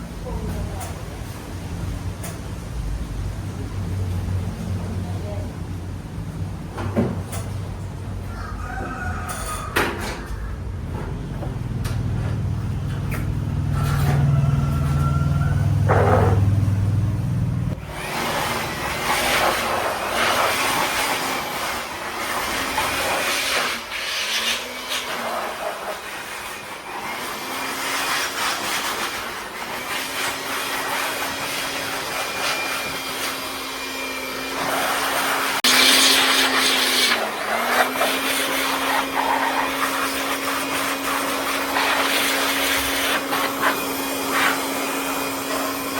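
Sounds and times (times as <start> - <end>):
electric motor grinding: 13.2 - 45.9.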